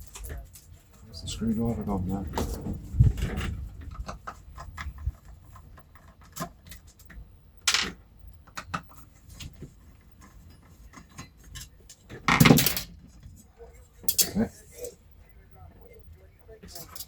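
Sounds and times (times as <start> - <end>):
metal tools clicking and clinking: 14.0 - 14.5, 16.7 - 17.0.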